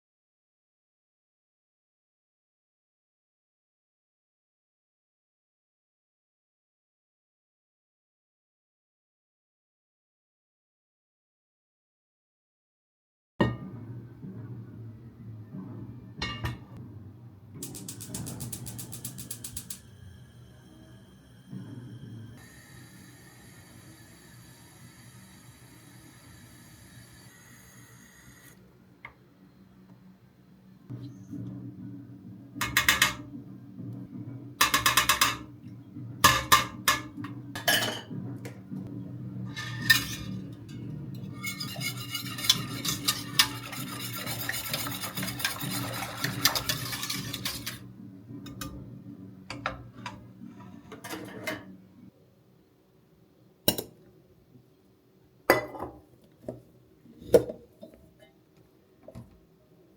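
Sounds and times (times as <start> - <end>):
kitchenware clinking: 36.3 - 38.2, 39.6 - 47.8, 55.5 - 56.0
low hum: 37.2 - 43.9
utensil whisking in a bowl: 39.6 - 47.8.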